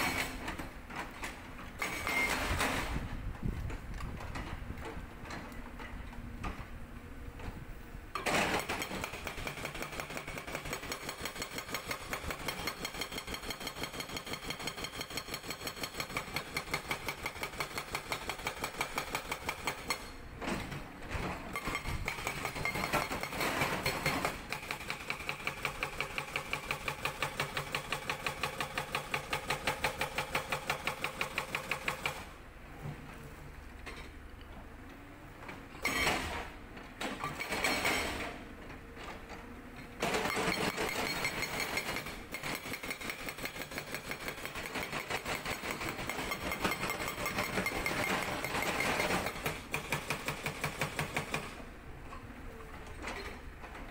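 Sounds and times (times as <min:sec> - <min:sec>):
hydraulic breaker hammering rock: 0:08.2 - 0:32.3, 0:37.1 - 0:38.4, 0:40.0 - 0:51.6.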